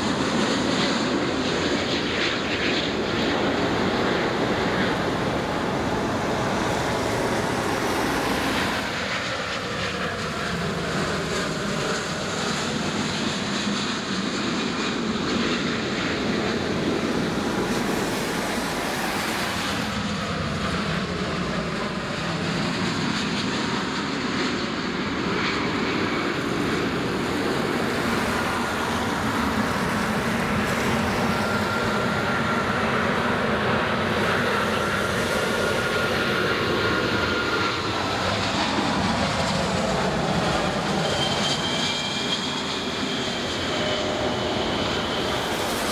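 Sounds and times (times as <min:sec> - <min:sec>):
jet airliner engines running: 0:00.0 - 0:45.9
faint high whine: 0:01.6 - 0:20.4.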